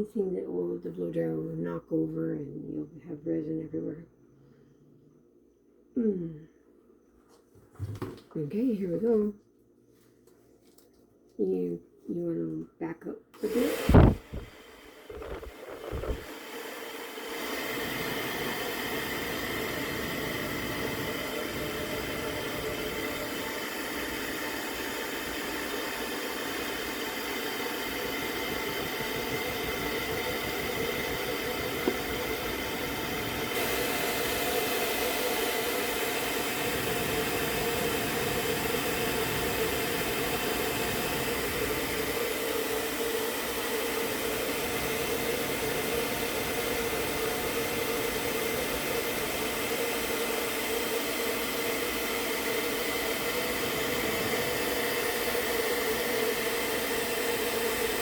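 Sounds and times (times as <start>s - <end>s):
hair dryer running: 13.4s - 58.0s.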